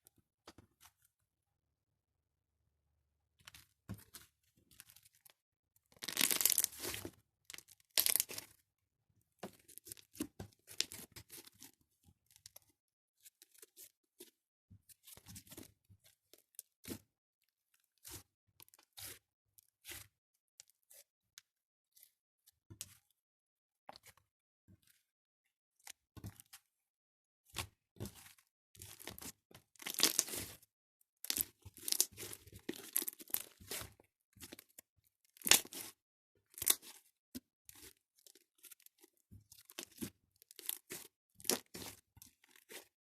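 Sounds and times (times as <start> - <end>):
slime crackling and squishing: 6.0 - 8.4, 28.8 - 30.6, 31.3 - 34.7, 39.5 - 42.0.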